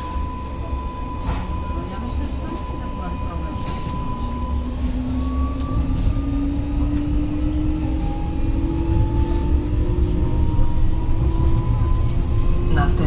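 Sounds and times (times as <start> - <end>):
train rumbling on rails: 0.0 - 13.0
traction motor whine: 3.8 - 13.0.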